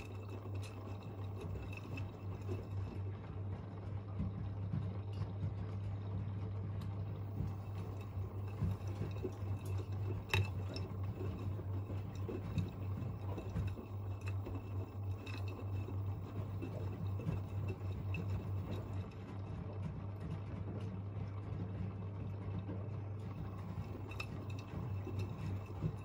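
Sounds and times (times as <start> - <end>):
steady low hum: 0.0 - 26.0
water sloshing in washing machine: 0.0 - 26.0
small clinks: 7.2 - 19.0.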